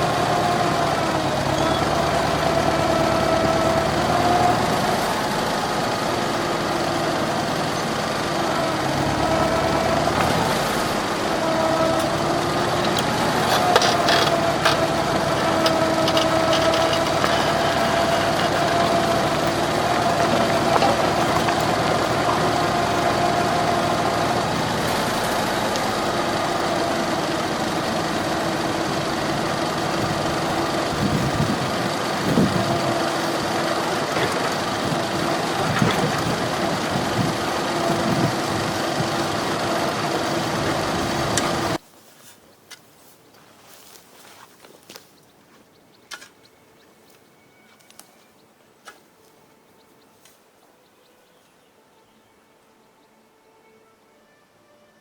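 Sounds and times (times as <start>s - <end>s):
tractor engine running: 0.0s - 41.8s
light clicks and rattles: 12.8s - 22.4s.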